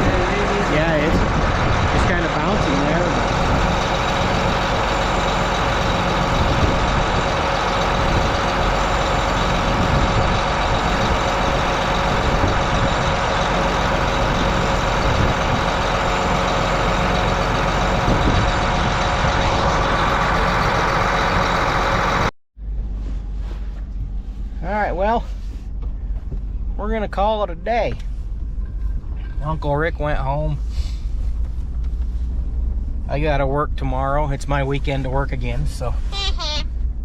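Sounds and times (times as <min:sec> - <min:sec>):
engine running steadily: 0:00.0 - 0:37.0.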